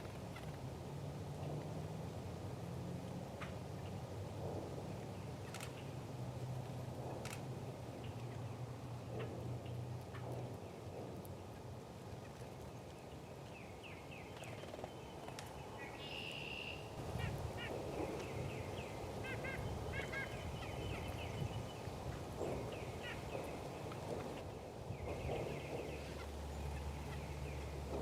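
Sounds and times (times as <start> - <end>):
songbirds chirping: 9.6 - 28.0
buzzy bird call: 18.4 - 21.4.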